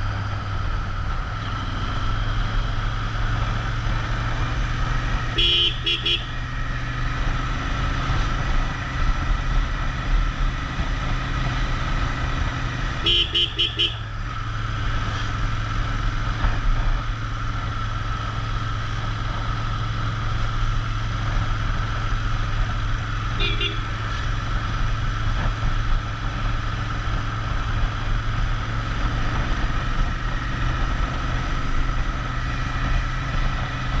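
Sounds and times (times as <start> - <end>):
motorcycle engine running: 0.0 - 34.0
vehicle horn beeps: 5.2 - 6.4, 13.0 - 14.0, 23.4 - 24.0.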